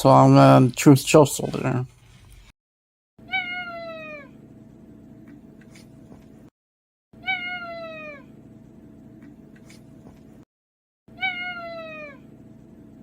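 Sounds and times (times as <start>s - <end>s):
cat meowing: 3.2s - 4.3s, 7.2s - 8.3s, 11.1s - 12.2s.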